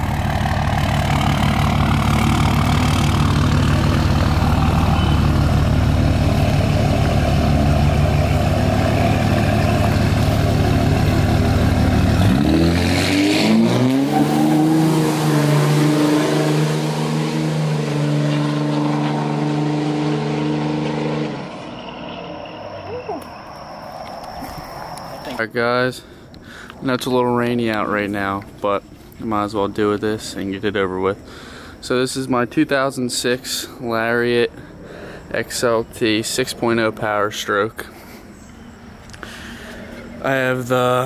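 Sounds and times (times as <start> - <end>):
vehicle engine rumbling and revving: 0.0 - 25.4.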